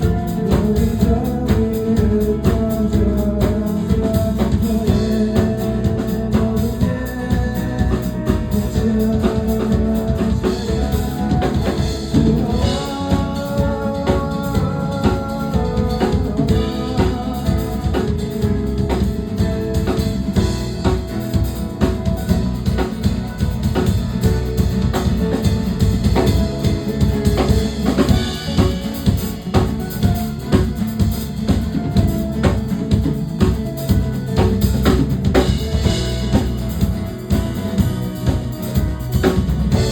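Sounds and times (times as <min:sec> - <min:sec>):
drum kit beat: 0:00.0 - 0:39.9.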